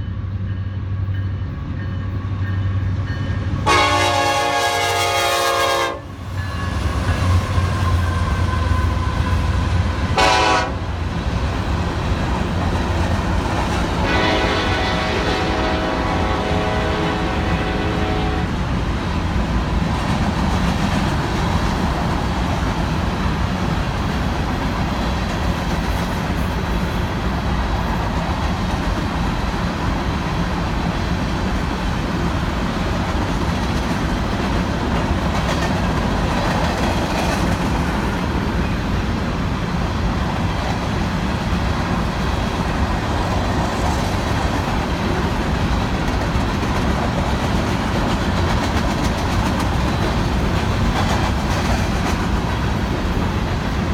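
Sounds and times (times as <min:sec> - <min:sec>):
train cars rumbling past: 0:00.0 - 0:53.9.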